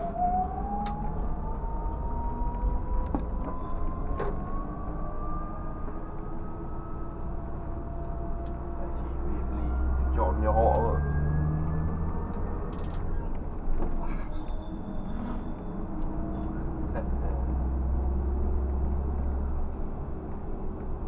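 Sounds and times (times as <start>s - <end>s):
whine climbing in pitch: 0.0s - 19.8s
bus engine and road rumble: 0.0s - 21.0s.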